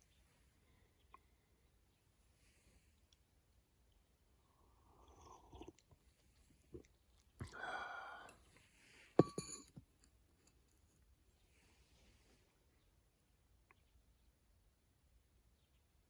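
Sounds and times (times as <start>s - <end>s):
cup knocking down on surface: 9.2s - 9.7s.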